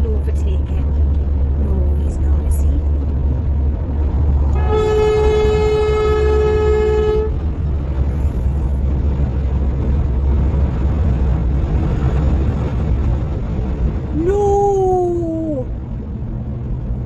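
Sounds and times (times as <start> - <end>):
vehicle driving rumble: 0.0 - 17.0
vehicle horn: 4.5 - 7.4.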